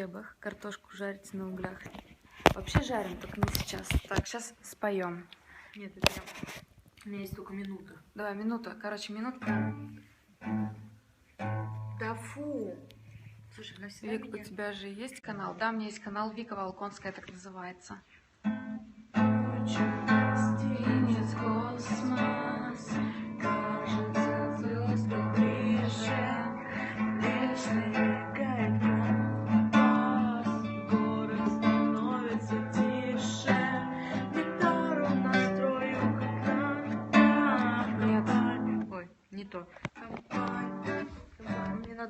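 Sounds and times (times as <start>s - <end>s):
acoustic guitar strumming: 9.4s - 13.4s, 18.4s - 39.0s, 40.2s - 41.8s.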